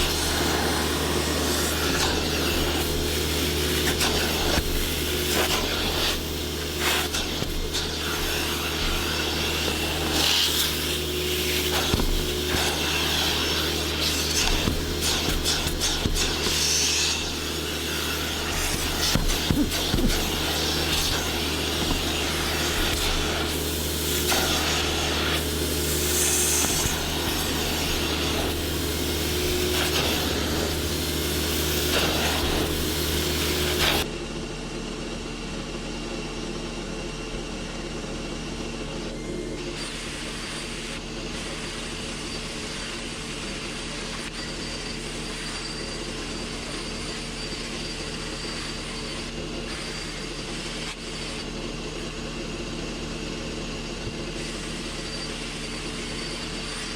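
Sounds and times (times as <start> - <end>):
brush scrubbing upholstery: 0.0 - 34.1
motor hum: 0.0 - 45.0.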